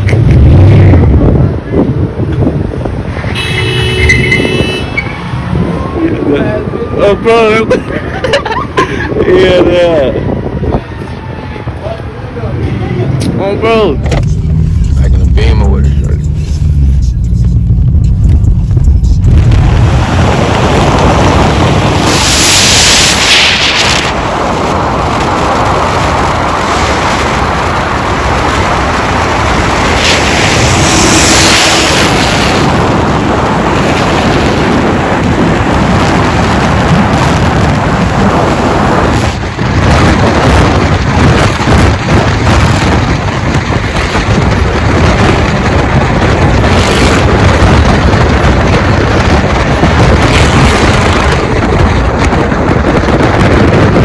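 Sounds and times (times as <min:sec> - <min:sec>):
car engine at high revs: 0:13.2 - 0:54.0.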